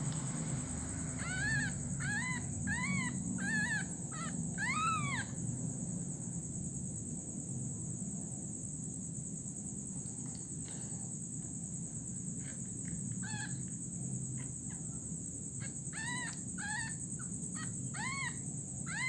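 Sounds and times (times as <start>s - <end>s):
high insect drone: 0.0s - 19.0s
young animal crying: 0.8s - 5.4s, 13.2s - 13.6s, 15.6s - 19.0s.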